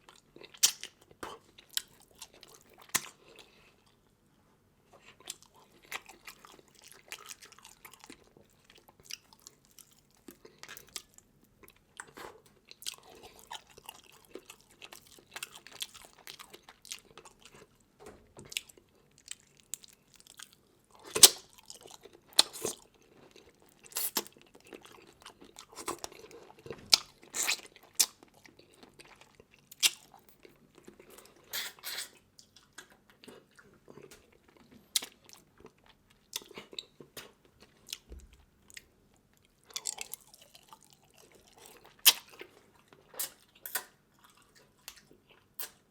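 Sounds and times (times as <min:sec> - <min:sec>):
food crunching and cracking: 0:00.0 - 0:04.0, 0:05.0 - 0:17.8, 0:18.4 - 0:45.9
wet chewing: 0:38.7 - 0:45.8.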